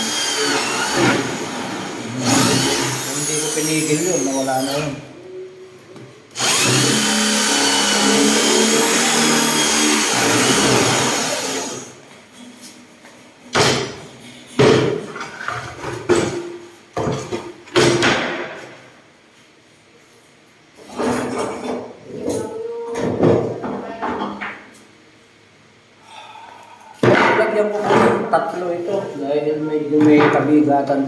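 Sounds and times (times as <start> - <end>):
power drill boring into wood: 0.0 - 5.0, 6.4 - 12.0.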